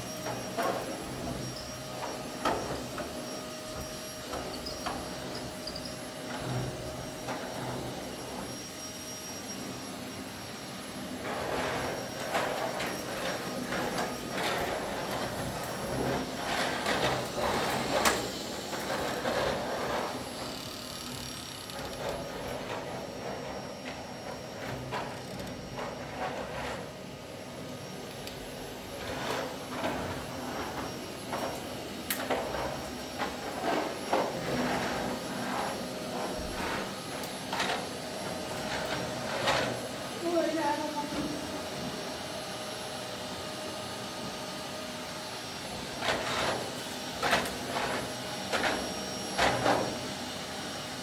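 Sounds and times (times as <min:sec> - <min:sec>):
vacuum cleaner whining: 0:00.0 - 0:51.0
nozzle rushing over floor: 0:09.7 - 0:51.0.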